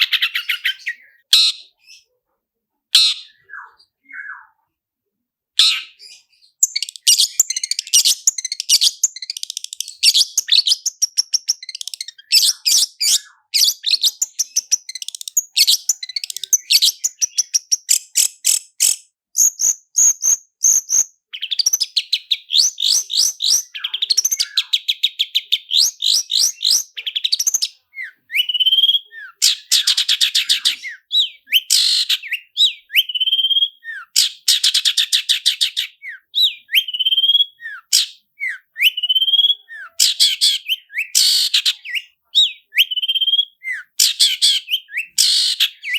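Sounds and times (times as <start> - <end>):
bird singing rapid trills: 5.7 - 45.9.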